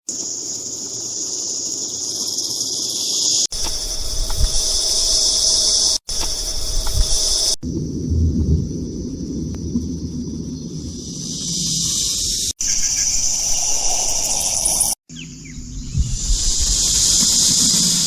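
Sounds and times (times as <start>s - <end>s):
high-pitched insect-like hiss: 0.1s - 7.6s, 10.9s - 15.0s, 15.7s - 18.0s
low rumble: 7.6s - 11.5s, 15.4s - 17.1s.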